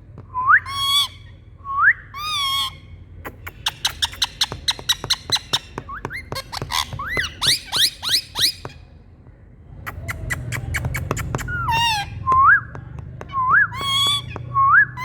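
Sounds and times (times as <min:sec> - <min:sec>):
low steady hum: 0:00.0 - 0:10.1
parrots screeching and whistling: 0:00.6 - 0:01.3, 0:02.1 - 0:08.8, 0:10.3 - 0:12.2, 0:13.3 - 0:15.0.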